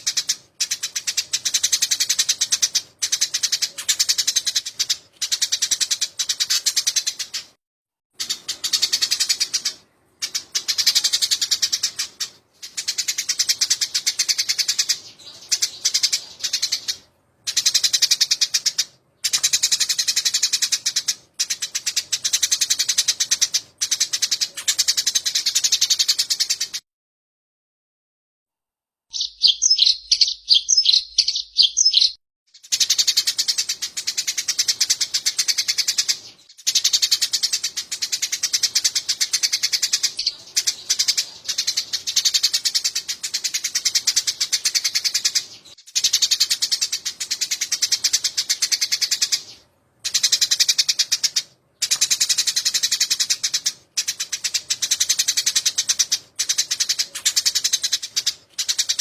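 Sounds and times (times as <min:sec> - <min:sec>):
sparrows chattering: 0:00.0 - 0:07.6, 0:08.2 - 0:26.8, 0:29.1 - 0:59.0.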